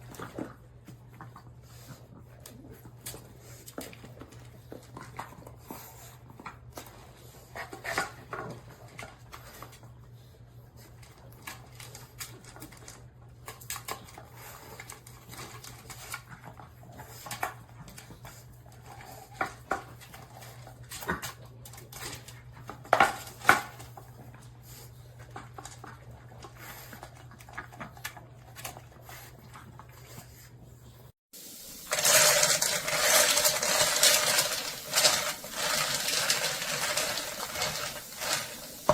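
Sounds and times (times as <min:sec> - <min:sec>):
dog crunching kibble: 0:31.8 - 0:38.9.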